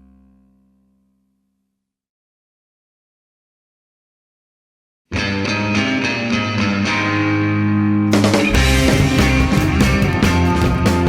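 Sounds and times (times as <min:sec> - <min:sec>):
instrumental rock music: 0:05.1 - 0:11.0.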